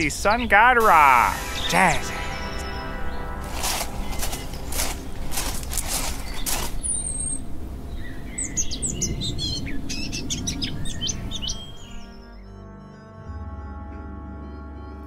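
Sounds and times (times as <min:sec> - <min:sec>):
small birds chirping: 0:01.2 - 0:12.4.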